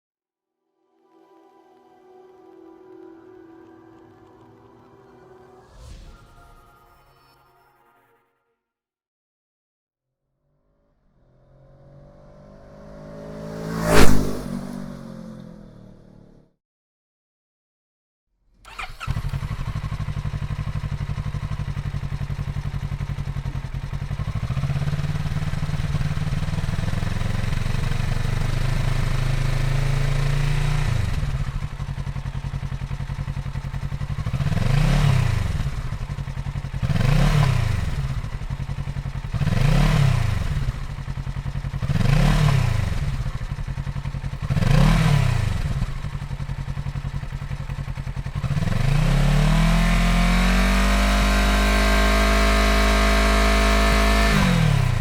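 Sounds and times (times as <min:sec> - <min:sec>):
engine revving: 0:10.9 - 0:16.4, 0:18.7 - 0:46.3, 0:48.0 - 0:55.0
motorcycle engine idling: 0:18.7 - 0:50.8.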